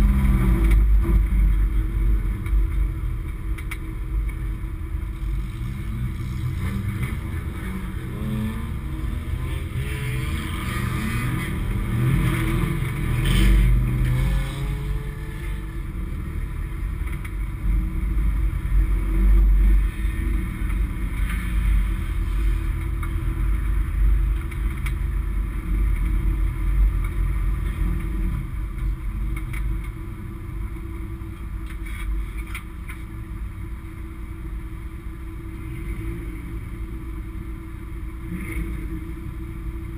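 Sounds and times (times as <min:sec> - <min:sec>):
race car engine revving: 0:05.2 - 0:17.2.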